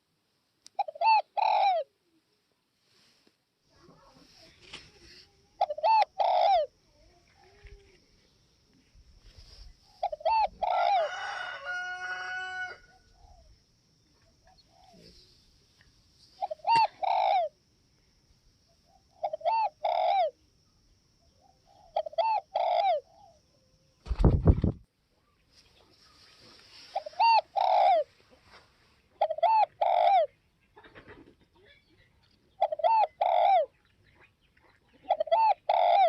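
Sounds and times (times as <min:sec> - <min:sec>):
dove cooing: 0:00.8 - 0:02.0, 0:05.5 - 0:08.0, 0:09.8 - 0:13.5, 0:14.4 - 0:15.2, 0:16.4 - 0:17.6, 0:18.9 - 0:20.4, 0:21.4 - 0:23.4, 0:26.4 - 0:31.8, 0:32.5 - 0:33.8, 0:34.9 - 0:36.0.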